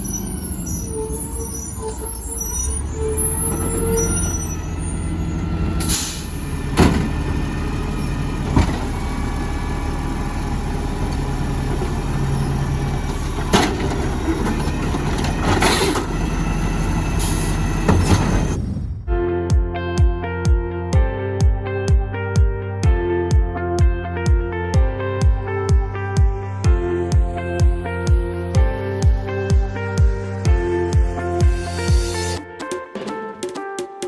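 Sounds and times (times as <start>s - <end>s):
garbage truck engine running: 0.0s - 19.1s
air brake hisses: 0.2s - 6.4s, 17.2s - 17.7s.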